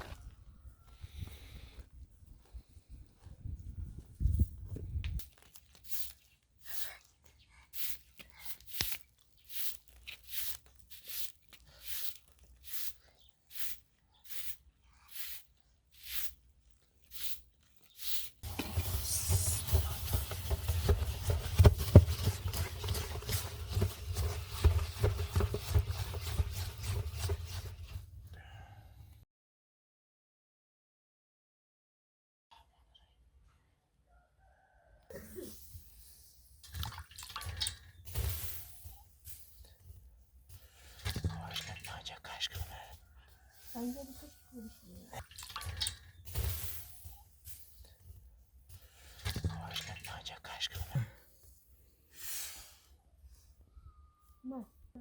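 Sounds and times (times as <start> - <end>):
evenly spaced scraping strokes: 18.0 - 24.9.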